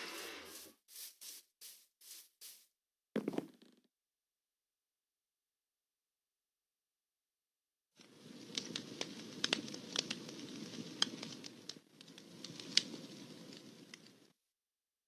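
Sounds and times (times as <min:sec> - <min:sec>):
campfire crackling and popping: 0:08.0 - 0:14.3.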